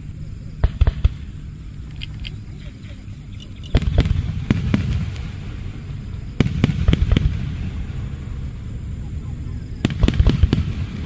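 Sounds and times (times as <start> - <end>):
firework shells bursting: 0.6 - 8.0
low rumble of booms and echoes: 3.7 - 11.0.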